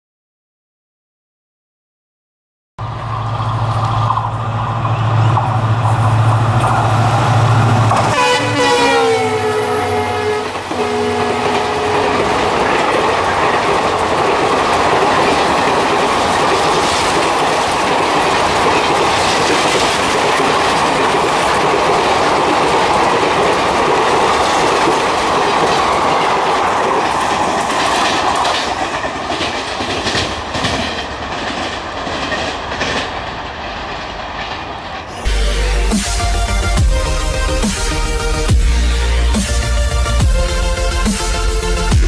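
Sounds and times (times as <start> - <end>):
train wheels rattling on rails: 2.8 - 35.3.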